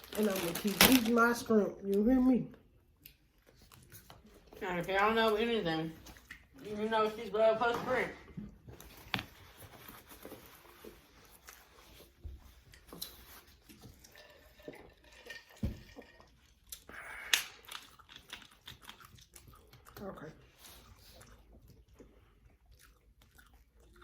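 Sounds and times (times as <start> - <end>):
person chewing: 2.8 - 4.6, 16.3 - 24.0
containers clicking and crinkling: 12.8 - 16.8.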